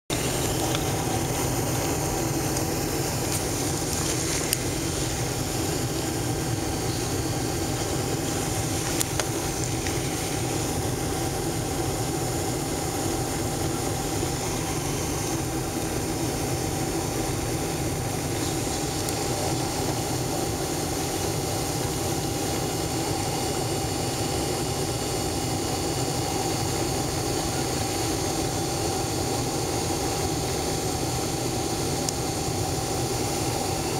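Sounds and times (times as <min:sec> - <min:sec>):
airliner cabin jet drone: 0:00.1 - 0:33.9.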